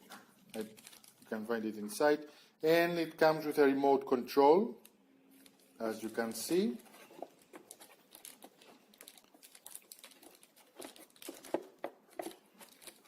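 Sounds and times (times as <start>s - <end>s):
plastic packaging crinkling: 0.0s - 1.4s, 4.8s - 13.0s.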